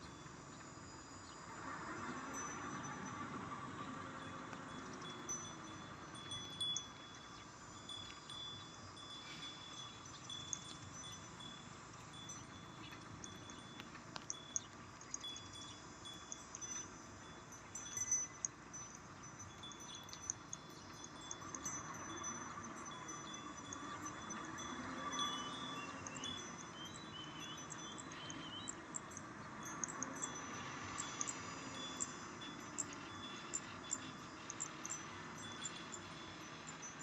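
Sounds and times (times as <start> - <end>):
small metal bells tinkling: 0.0 - 37.0
metal clinks: 4.2 - 37.0.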